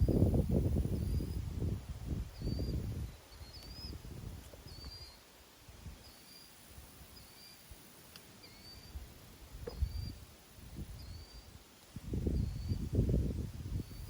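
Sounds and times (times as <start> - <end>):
steady high hiss: 0.0 - 14.0
bird chirping: 2.3 - 4.0, 4.6 - 5.2, 6.0 - 6.6, 7.2 - 7.7, 8.4 - 9.0, 9.6 - 10.2, 10.9 - 11.5, 12.3 - 12.9.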